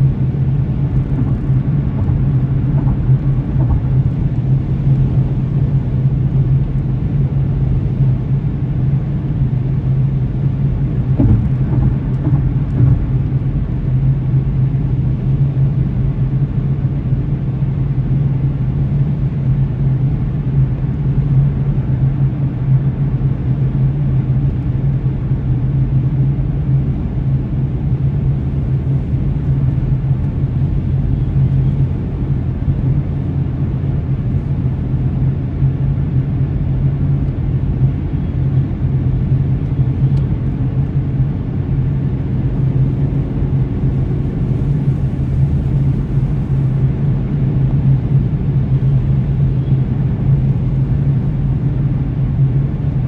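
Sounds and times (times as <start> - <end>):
car engine and tyre drone: 0.0 - 14.6, 26.8 - 53.0.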